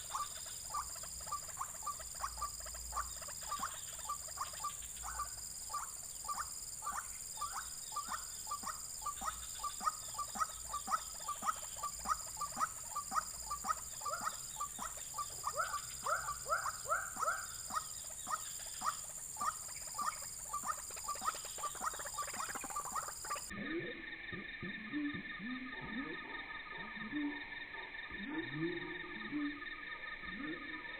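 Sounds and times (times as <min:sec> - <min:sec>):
waterhen calls: 0:00.0 - 0:23.6.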